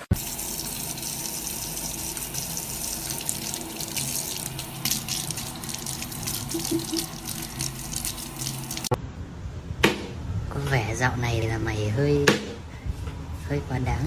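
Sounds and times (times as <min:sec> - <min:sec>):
running water splashing: 0:00.1 - 0:09.0.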